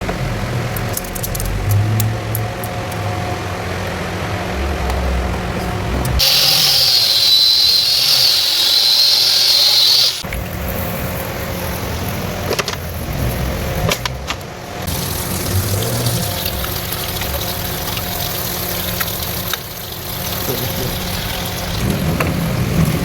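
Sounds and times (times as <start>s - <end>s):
low mechanical rumble: 0.0s - 8.0s, 10.2s - 23.0s
power tool whining: 4.9s - 10.3s
sharp clicks and knocks: 13.8s - 14.5s.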